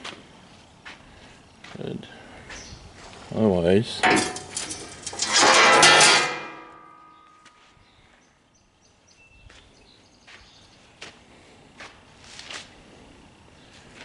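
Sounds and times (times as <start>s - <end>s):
metal lid clanging shut: 4.0s - 7.2s.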